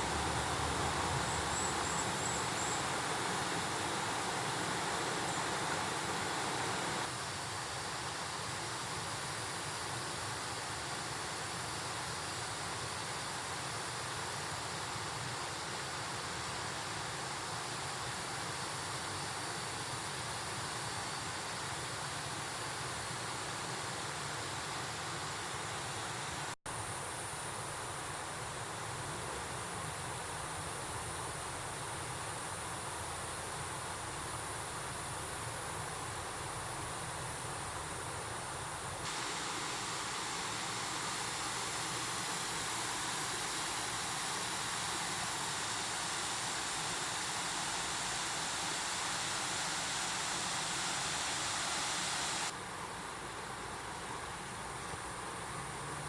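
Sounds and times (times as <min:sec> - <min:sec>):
stream water rushing: 0:00.0 - 0:18.3, 0:32.3 - 0:56.0.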